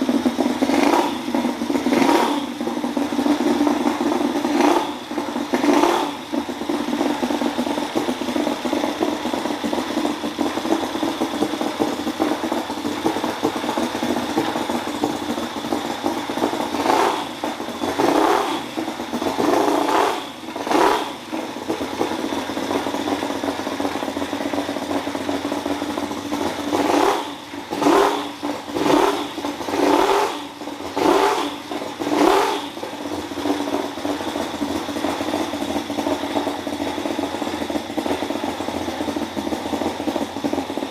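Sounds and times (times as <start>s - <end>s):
small engine revving: 0.0s - 2.8s, 4.0s - 6.5s, 16.5s - 22.3s, 26.4s - 34.1s.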